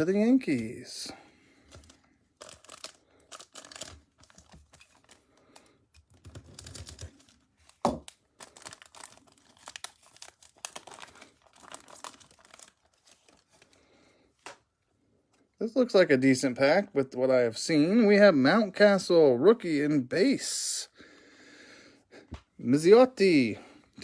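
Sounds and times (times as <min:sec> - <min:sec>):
foil wrapper crinkling and tearing: 0:01.6 - 0:14.0.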